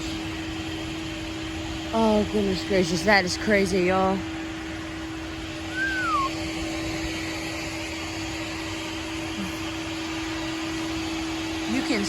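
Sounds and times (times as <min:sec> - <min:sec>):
high tone falling in pitch: 0:05.7 - 0:06.3.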